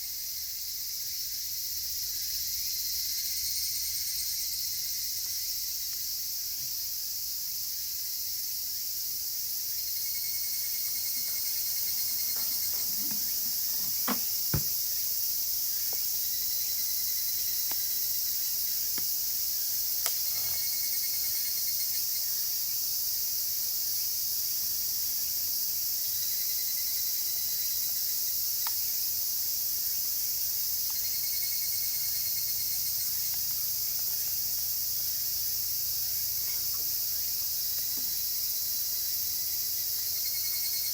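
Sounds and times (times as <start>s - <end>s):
cicada chorus: 0.0s - 40.9s
evening cicadas pulsed calls: 0.0s - 40.9s
campfire crackling: 10.5s - 14.9s.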